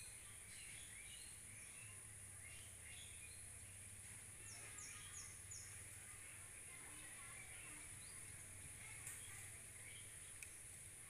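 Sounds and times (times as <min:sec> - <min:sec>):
small bird high chirps: 0:00.0 - 0:03.8, 0:04.4 - 0:05.8.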